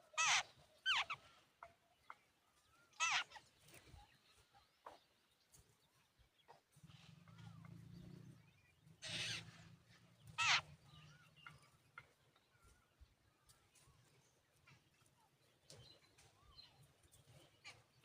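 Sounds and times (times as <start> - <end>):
birds calling harshly: 0.0 - 5.2, 6.4 - 13.9.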